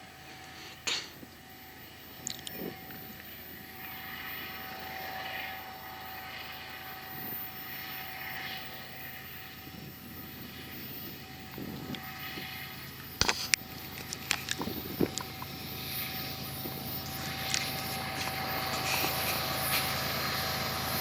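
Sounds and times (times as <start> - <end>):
vehicle running noise: 0.0 - 21.0
sharp clicks and knocks: 13.2 - 13.6.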